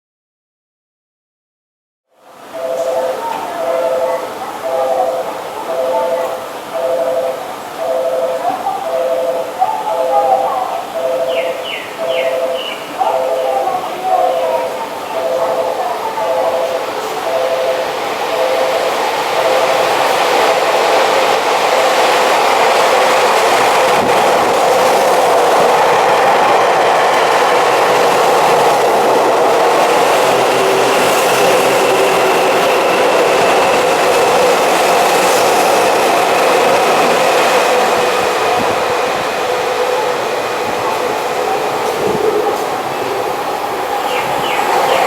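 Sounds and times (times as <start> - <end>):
thin high whine: 2.4 - 45.0
train wheels rumbling on rail: 2.4 - 45.0.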